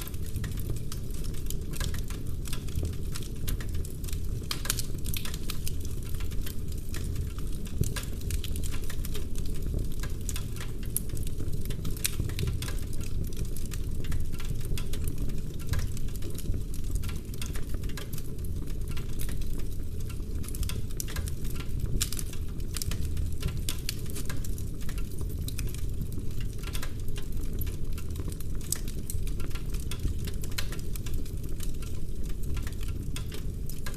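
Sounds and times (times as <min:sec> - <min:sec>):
low fire rumble: 0:00.0 - 0:33.9
wood fire crackling and popping: 0:00.0 - 0:33.9.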